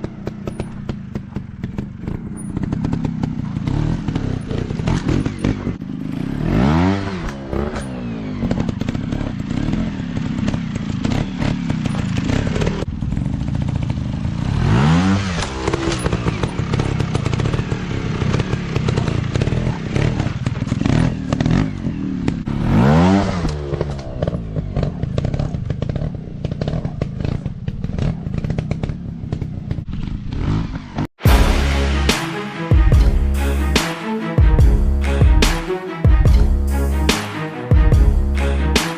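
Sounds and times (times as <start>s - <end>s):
dirt bike engines revving: 0.0s - 32.6s.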